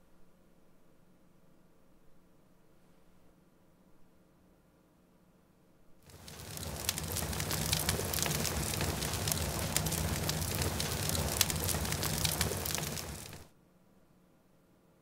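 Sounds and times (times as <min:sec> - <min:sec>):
fire crackling: 0:06.1 - 0:13.5
low rumble: 0:06.1 - 0:13.5.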